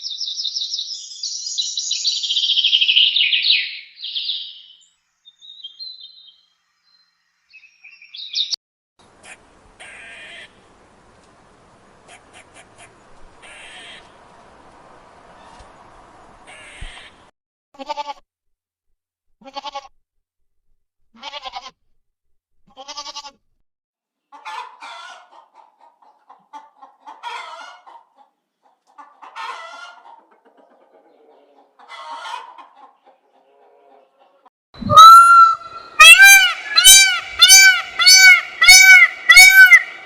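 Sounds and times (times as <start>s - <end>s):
chickens clucking and calling: 12.0s - 14.6s, 24.2s - 40.0s.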